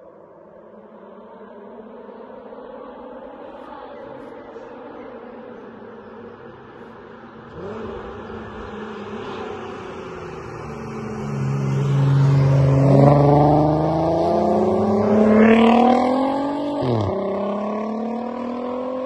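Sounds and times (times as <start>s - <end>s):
car engine accelerating hard: 5.7s - 19.0s.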